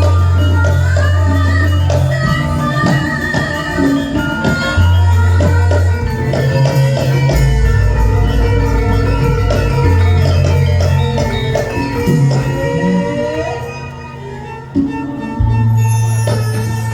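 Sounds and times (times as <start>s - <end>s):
gamelan ensemble playing: 0.0s - 16.9s
struck pitched notes: 5.8s - 13.2s
drum strikes: 6.0s - 12.8s
sustained low bass notes: 6.0s - 13.2s.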